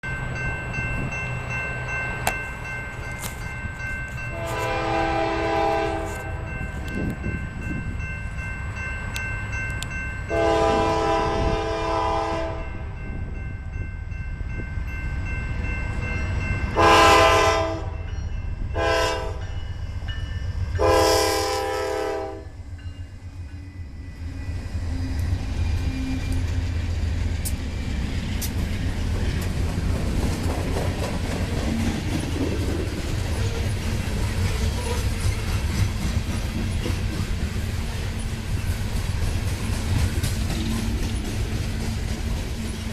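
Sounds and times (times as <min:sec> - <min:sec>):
locomotive air horn blasts: 0:04.3 - 0:06.5, 0:10.3 - 0:12.8, 0:16.8 - 0:18.0, 0:18.8 - 0:19.5, 0:20.8 - 0:22.6.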